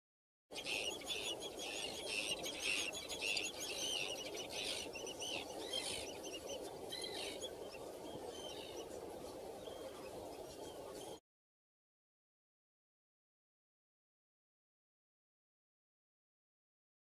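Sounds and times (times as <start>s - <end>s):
small birds chirping: 0.5s - 11.2s.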